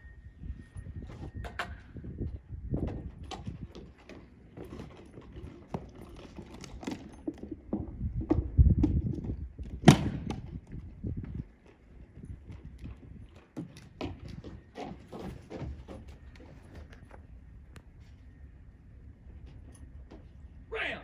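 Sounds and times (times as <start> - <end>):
knocks and clatter of tools: 2.8 - 9.4.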